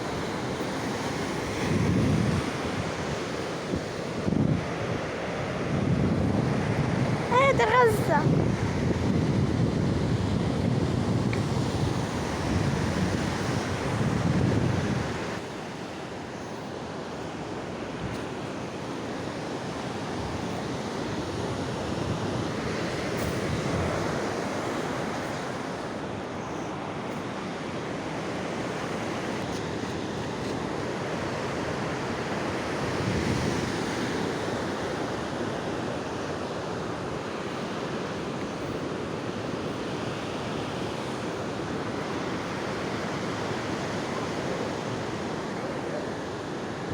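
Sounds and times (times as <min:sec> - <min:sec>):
wind buffeting microphone: 0:00.0 - 0:15.4
sea surf washing ashore: 0:00.0 - 0:46.9.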